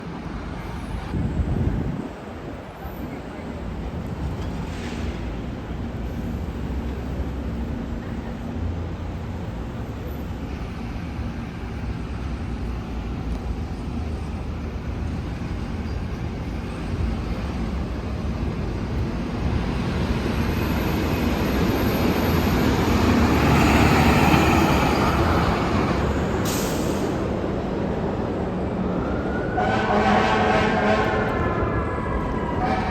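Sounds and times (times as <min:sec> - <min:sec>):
fire engine diesel engine passing: 0:11.4 - 0:29.6.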